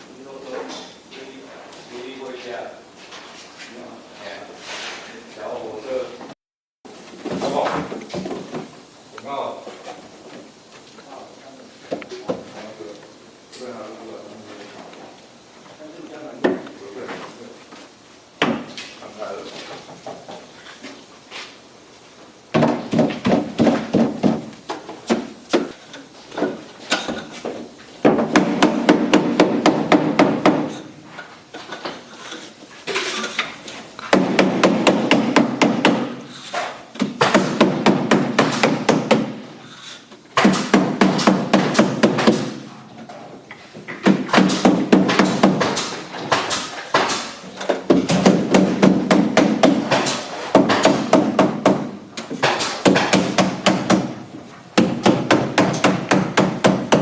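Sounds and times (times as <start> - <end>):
hammer tapping on board: 28.0 - 30.8, 47.9 - 54.2, 54.8 - 57.0.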